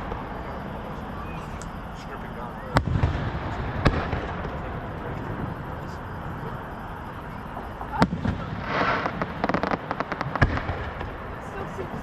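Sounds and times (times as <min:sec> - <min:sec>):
fireworks crackling: 0:00.0 - 0:12.0
fireworks rumbling bursts: 0:00.0 - 0:12.0
firework sharp bang: 0:02.7 - 0:05.8, 0:07.0 - 0:11.2.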